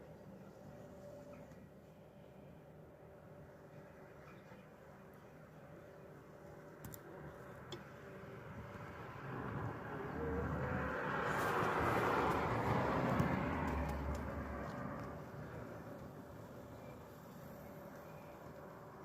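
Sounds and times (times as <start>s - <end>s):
passing vehicle rumbling: 8.4s - 15.9s.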